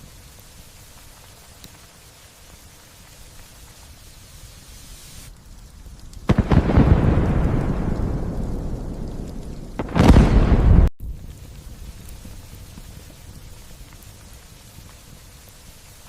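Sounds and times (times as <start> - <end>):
light rain falling: 0.0 - 16.0
thunderclap rolling into rumble: 6.3 - 10.9.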